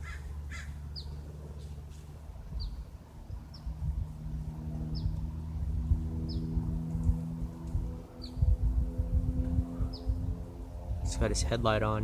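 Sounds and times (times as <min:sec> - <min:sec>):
bird chirping: 0:00.0 - 0:01.2, 0:06.2 - 0:06.6, 0:09.9 - 0:10.2
distant propeller plane droning: 0:00.0 - 0:12.0.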